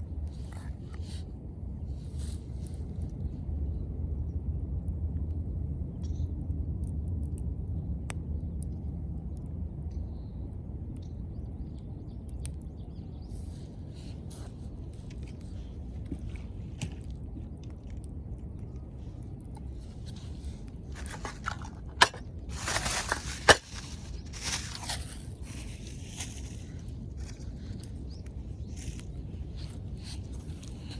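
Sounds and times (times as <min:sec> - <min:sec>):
low fire rumble: 0:00.0 - 0:30.9
wood fire crackling: 0:13.4 - 0:30.9.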